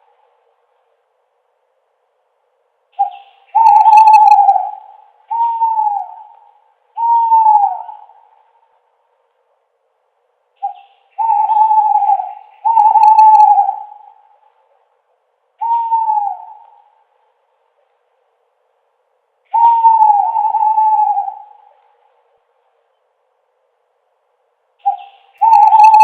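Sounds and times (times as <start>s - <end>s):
owl hooting: 3.0s - 8.6s, 10.6s - 14.6s, 15.6s - 17.2s, 19.5s - 22.2s, 24.8s - 26.0s.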